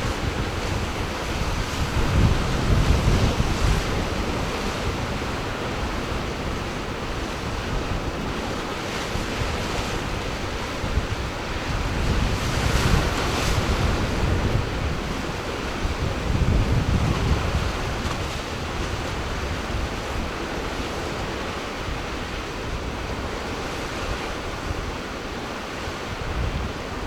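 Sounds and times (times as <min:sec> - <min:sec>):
ocean surf breaking: 0:00.0 - 0:27.0
wind rumbling on microphone: 0:00.0 - 0:27.0.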